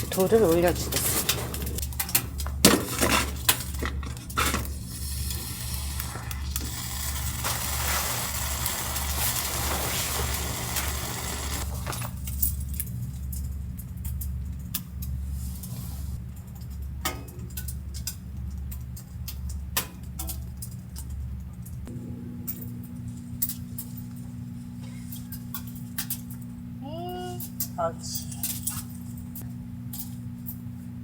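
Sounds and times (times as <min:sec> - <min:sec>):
low pulsing hum: 0:00.0 - 0:31.0.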